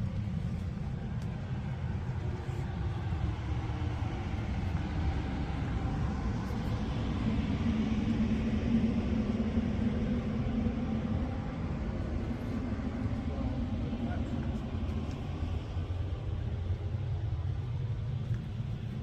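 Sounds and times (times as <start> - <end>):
vehicle rumbling: 0.0 - 19.0.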